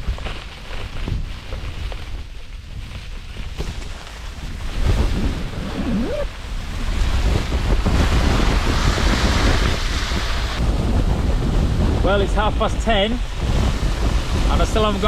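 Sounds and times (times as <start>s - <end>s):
storm wind gusting against tent: 0.0s - 15.0s
wind rumble on microphone: 0.0s - 15.0s
short rising squeak: 5.6s - 6.3s.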